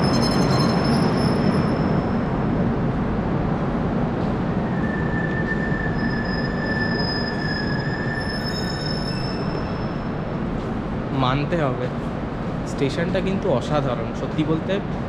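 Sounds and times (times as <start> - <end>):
high wheel squeal: 0.0 - 2.4, 4.5 - 10.5
train rolling rumble: 0.0 - 15.0.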